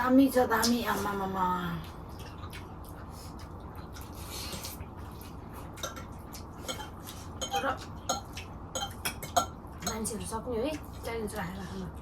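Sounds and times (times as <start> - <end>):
steady low hum: 0.0 - 12.0
dishes and cutlery clinking: 5.8 - 10.2.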